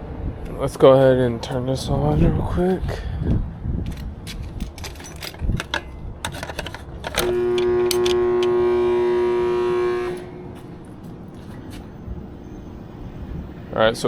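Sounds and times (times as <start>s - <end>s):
compressor electrical buzz: 7.0s - 11.6s.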